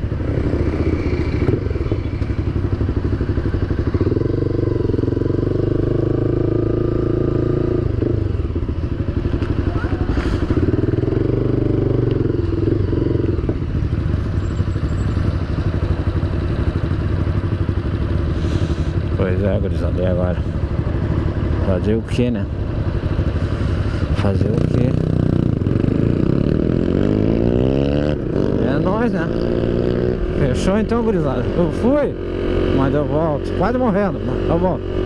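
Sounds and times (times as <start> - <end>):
small motorcycle engine riding: 0.0 - 35.0.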